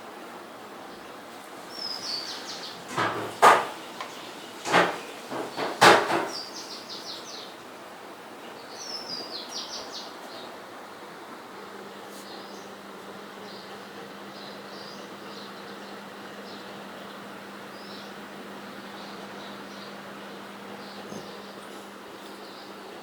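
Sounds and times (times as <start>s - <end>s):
steady hiss: 0.0s - 14.3s.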